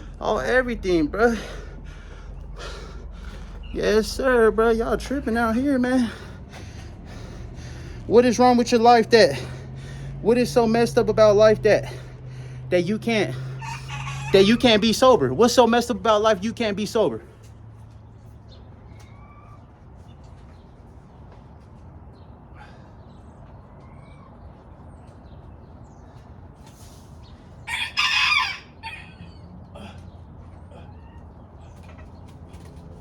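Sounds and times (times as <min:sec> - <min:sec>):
rooster crowing: 0:13.6 - 0:14.9, 0:27.6 - 0:29.5.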